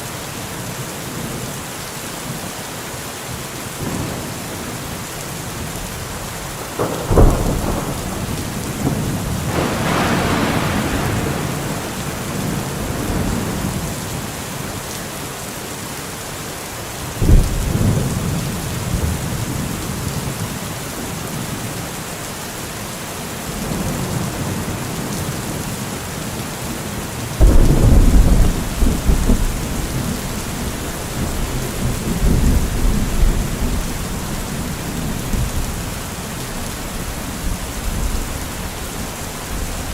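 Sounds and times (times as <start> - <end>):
heavy rain: 0.0 - 39.9
thunder claps and rumble: 3.8 - 14.8, 17.2 - 20.7, 27.4 - 39.9.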